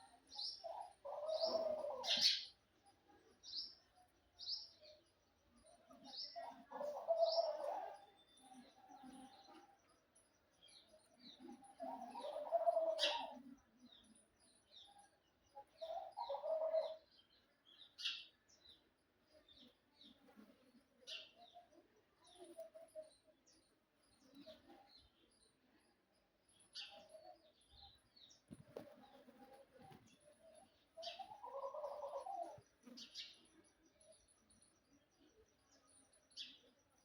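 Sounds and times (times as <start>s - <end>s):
birds chirping: 21.0s - 37.0s.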